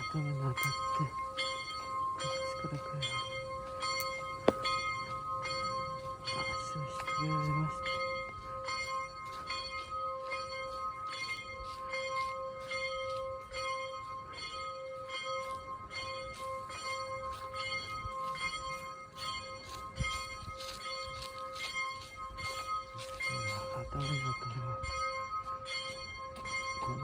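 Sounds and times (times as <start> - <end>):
bell-like ringing: 0.0 - 27.0.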